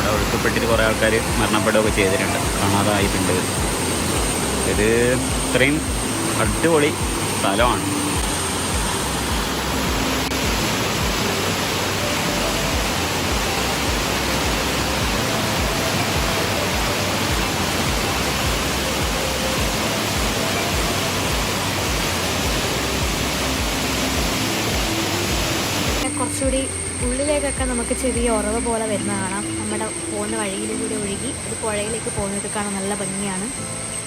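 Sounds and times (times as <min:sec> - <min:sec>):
river current rushing: 0:00.0 - 0:27.0.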